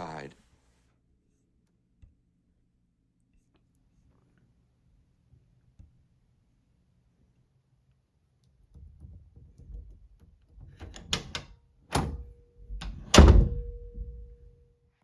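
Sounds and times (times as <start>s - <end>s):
door handle and latch clicking: 10.6s - 12.2s, 12.8s - 14.1s
knocks against door: 12.8s - 14.2s.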